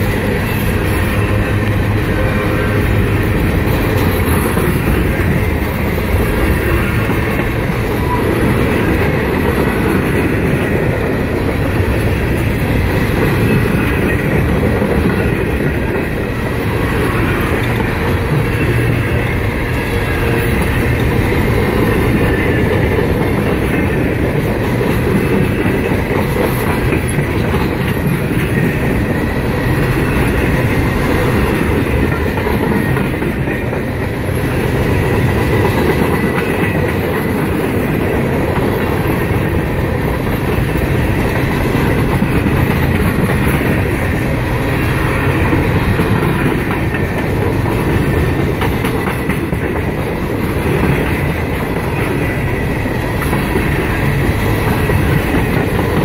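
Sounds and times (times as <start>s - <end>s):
freight train wheels rumbling on rails: 0.0s - 56.0s.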